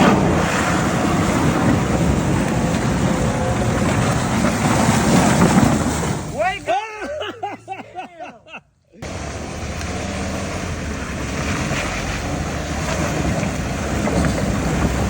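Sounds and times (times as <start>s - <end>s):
vehicle engine running: 0.0s - 6.4s, 9.0s - 15.0s
wind noise on microphone: 0.0s - 6.4s, 12.0s - 15.0s.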